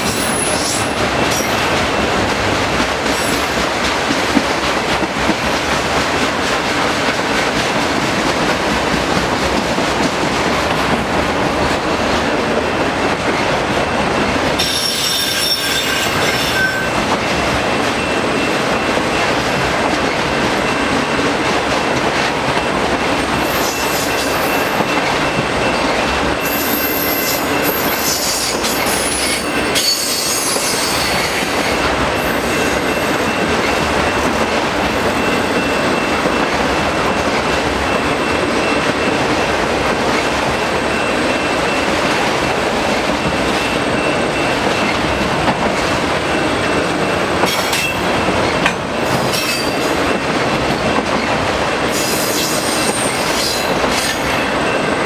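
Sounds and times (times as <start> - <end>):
high-pitched wheel squeal: 14.6 - 17.0.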